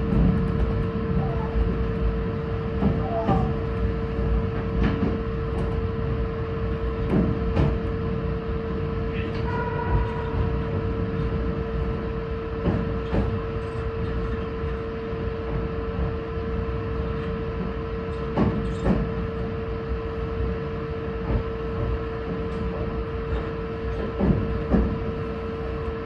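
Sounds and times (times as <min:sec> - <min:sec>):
electric train rumbling: 0:00.0 - 0:26.0.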